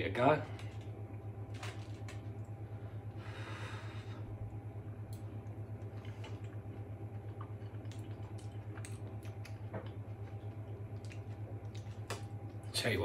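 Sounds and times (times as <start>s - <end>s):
low hum: 0.0s - 13.0s
man chewing: 5.0s - 12.6s.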